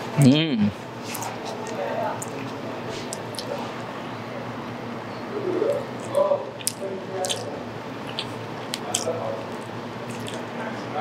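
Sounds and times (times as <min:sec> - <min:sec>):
person biting and chewing: 0:01.1 - 0:03.6, 0:05.6 - 0:10.6
crisp coating clicks: 0:06.0 - 0:10.5.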